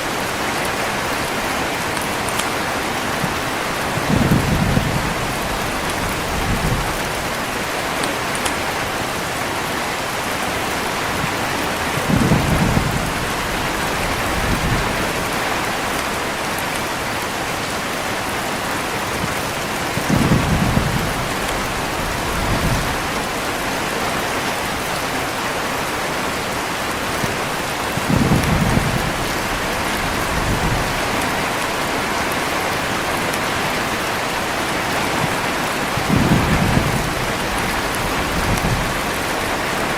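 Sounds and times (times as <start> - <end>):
heavy rain: 0.0 - 39.9
thunder rumbling: 2.8 - 16.6, 18.9 - 24.9, 27.8 - 39.9.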